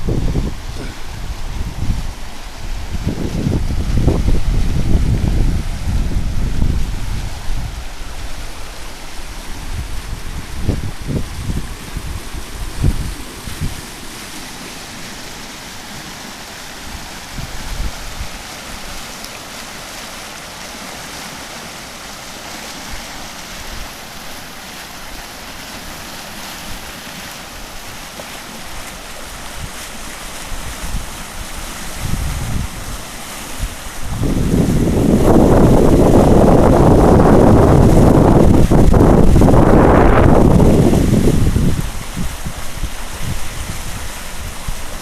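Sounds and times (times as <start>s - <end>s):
wind buffeting microphone: 0.0s - 14.4s, 16.8s - 19.0s, 29.4s - 45.0s
floodwater rushing: 0.0s - 45.0s.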